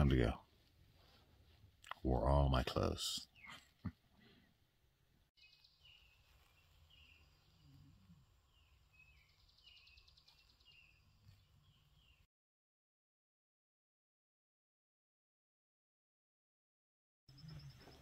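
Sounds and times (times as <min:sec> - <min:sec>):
faint bird trill: 0:17.3 - 0:18.0
falling bird chirps: 0:17.3 - 0:18.0.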